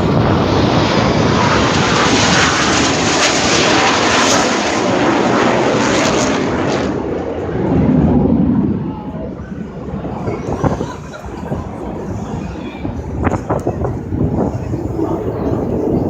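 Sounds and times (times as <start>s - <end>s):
jet aircraft roaring past: 0.0s - 16.0s.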